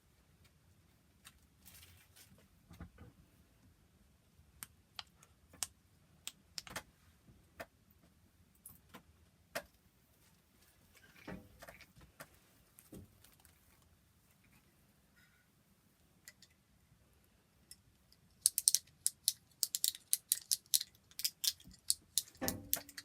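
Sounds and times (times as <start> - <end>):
fidget toy clicking: 18.4 - 23.0.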